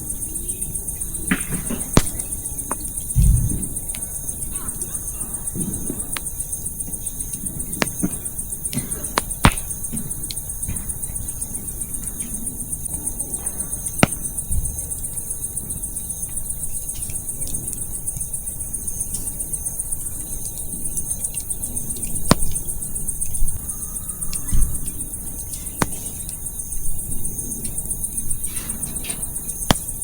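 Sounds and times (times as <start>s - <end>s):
insects chirping: 0.0s - 30.0s
firewood popping: 1.8s - 3.0s, 7.8s - 9.9s
campfire crackling: 1.8s - 3.2s, 6.0s - 6.5s.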